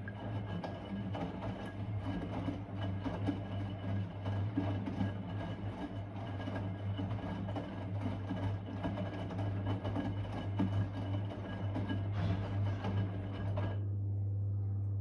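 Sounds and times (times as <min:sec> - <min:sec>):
washing machine motor hum: 0:00.0 - 0:14.2.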